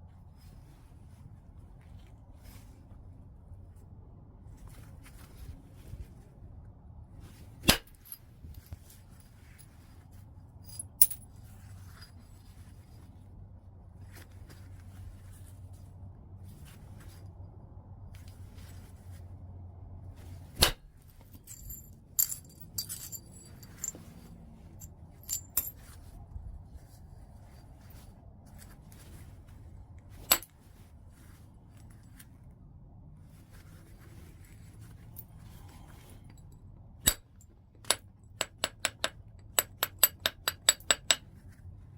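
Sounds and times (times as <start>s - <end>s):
stone clinking on stone: 10.6s - 11.3s, 20.6s - 24.2s, 24.8s - 25.8s.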